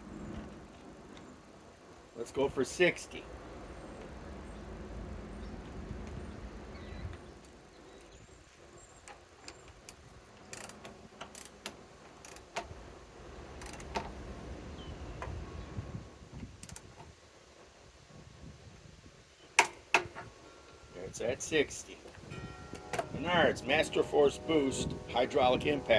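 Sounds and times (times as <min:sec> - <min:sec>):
torque wrench clicks: 0:13.6 - 0:14.0.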